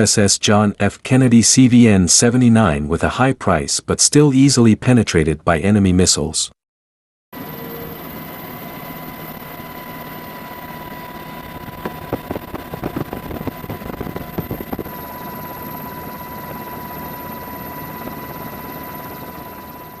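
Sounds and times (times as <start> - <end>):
steady mechanical rumble: 7.4 - 19.0
thin steady high tone: 7.4 - 20.0.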